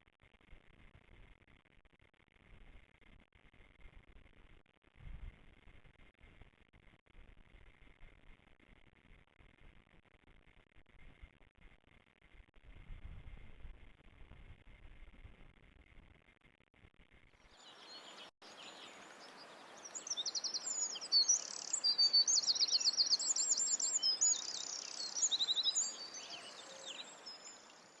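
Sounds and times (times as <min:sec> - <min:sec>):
outdoor hiss: 0:17.6 - 0:28.0
small birds trilling: 0:17.6 - 0:28.0.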